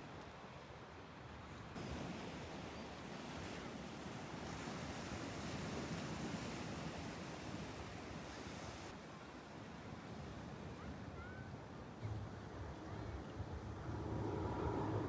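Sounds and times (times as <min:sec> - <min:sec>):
sea surf: 0:01.8 - 0:11.3.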